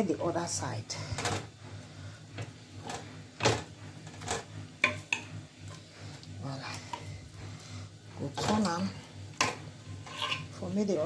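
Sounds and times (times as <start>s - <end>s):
fork scraping metal tray: 9.4s - 10.6s.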